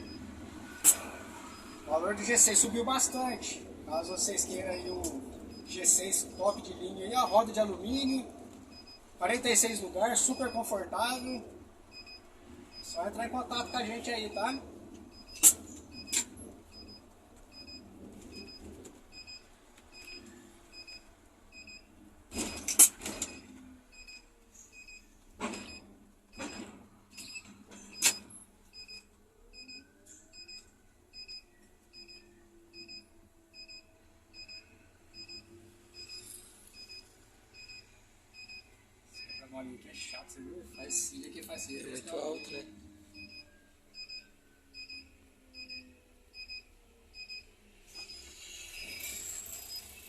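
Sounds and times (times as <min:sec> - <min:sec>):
short electronic beeps: 0:00.8 - 0:01.9, 0:04.2 - 0:08.1, 0:10.2 - 0:17.0, 0:28.8 - 0:39.5, 0:42.0 - 0:49.8.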